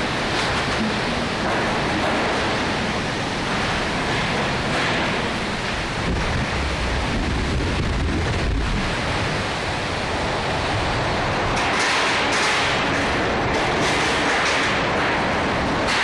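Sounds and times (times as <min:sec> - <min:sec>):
wind buffeting microphone: 0:00.0 - 0:11.7
strong wind rushing: 0:02.6 - 0:11.6.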